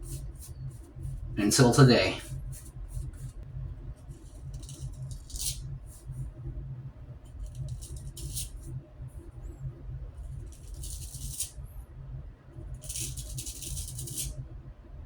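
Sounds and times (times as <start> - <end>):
steady low hum: 0.0 - 15.0
razor scratching on stubble: 4.6 - 5.6, 10.5 - 11.5, 12.8 - 14.3.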